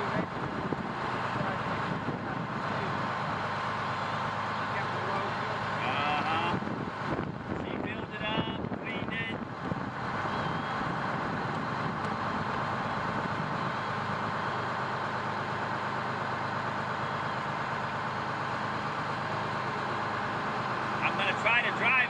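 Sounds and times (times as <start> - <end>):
fire truck engine droning: 0.0 - 22.0.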